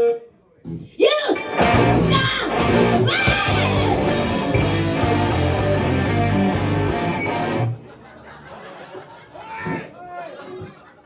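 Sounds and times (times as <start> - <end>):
electric guitar: 0.7 - 7.9
hard rock band playing: 1.4 - 7.8
yelled vocal: 1.6 - 6.8
bass line: 1.6 - 7.8.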